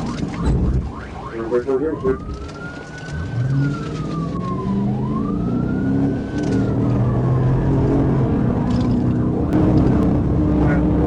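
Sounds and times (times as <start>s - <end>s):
police siren wailing: 0.0s - 11.0s
vehicle engine accelerating: 3.0s - 11.0s.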